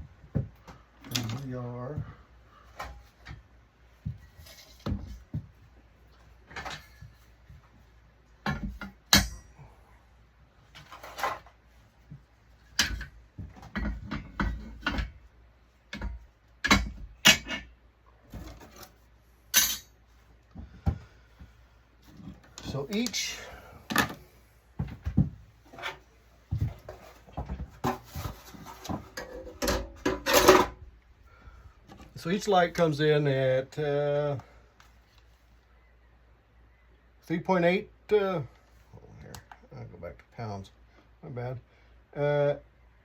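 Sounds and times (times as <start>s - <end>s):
aluminum pieces clanking: 15.9s - 17.7s, 19.5s - 20.0s, 29.1s - 30.8s.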